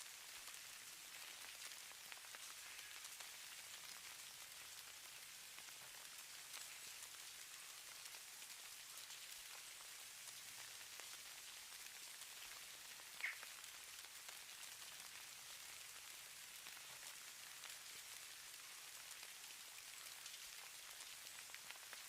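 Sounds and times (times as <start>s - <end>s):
snow falling hiss: 0.0s - 22.0s
soft ticks of snow grains: 0.0s - 22.0s.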